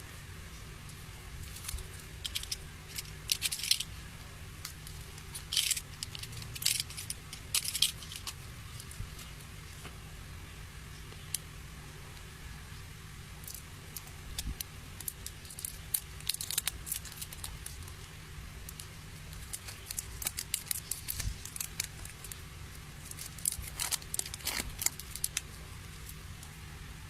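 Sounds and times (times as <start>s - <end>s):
plastic packaging crinkling and tearing: 1.4s - 4.0s, 4.6s - 9.4s, 13.4s - 26.5s.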